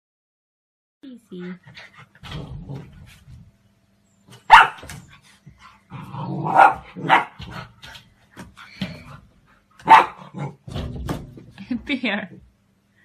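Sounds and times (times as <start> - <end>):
dog barking: 4.5 - 4.9, 6.4 - 7.4, 9.8 - 10.6.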